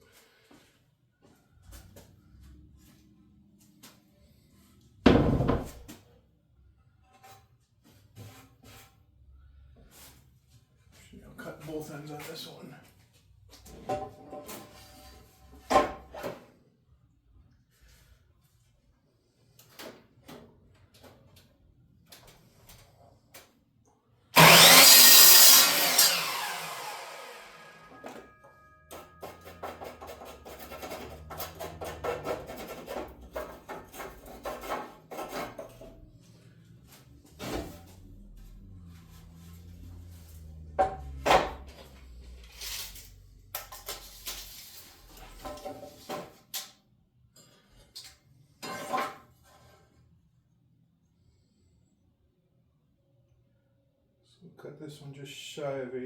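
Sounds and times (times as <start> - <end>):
lumber and tools knocking: 5.1 - 5.9, 28.0 - 36.0, 40.5 - 41.7
saw blade winding down: 24.4 - 28.4
power saw cutting wood: 24.4 - 36.1, 37.2 - 43.2
low hum: 35.8 - 43.4.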